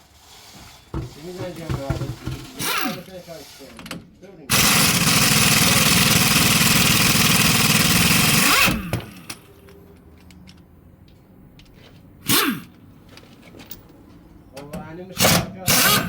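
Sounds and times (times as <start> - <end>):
power tool pulsing rattle: 1.5 - 3.1, 4.5 - 9.4, 15.2 - 16.0.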